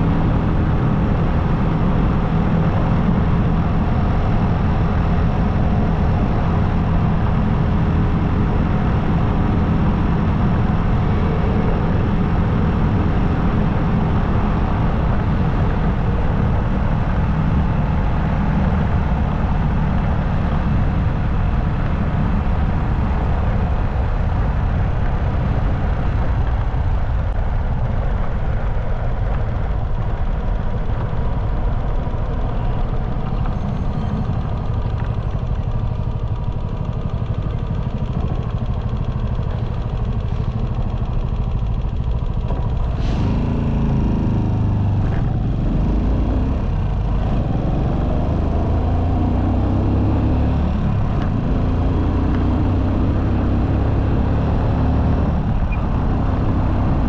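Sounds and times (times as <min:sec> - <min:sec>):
motorcycle engine and road noise: 0:00.0 - 0:57.0
engine note rising and falling: 0:31.7 - 0:57.0.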